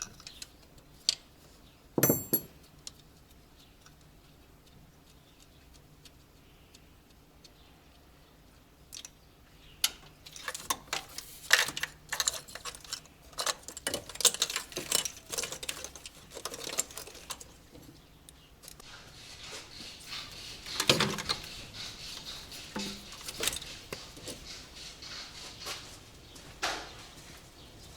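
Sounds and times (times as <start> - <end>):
hand tools clinking on metal: 2.0 - 2.6, 11.5 - 17.5.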